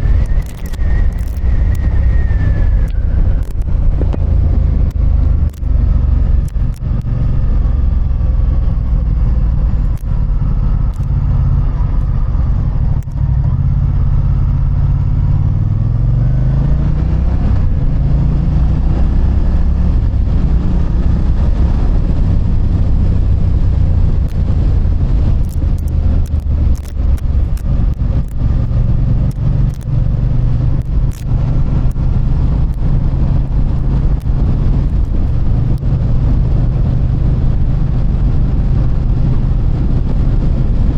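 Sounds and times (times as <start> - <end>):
motorcycle engine running: 0.0 - 40.9
brief clicks: 0.1 - 5.8, 6.4 - 7.3, 9.8 - 10.2, 10.9 - 11.2, 13.0 - 13.2, 25.4 - 29.9, 30.7 - 32.0.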